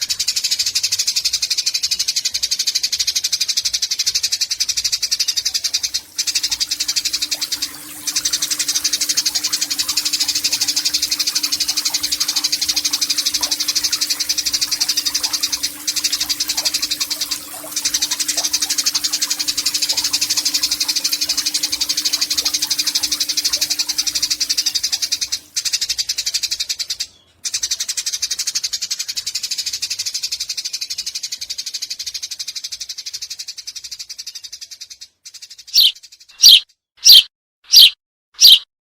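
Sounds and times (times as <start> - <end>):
sparrow chattering trill: 35.8 - 38.6.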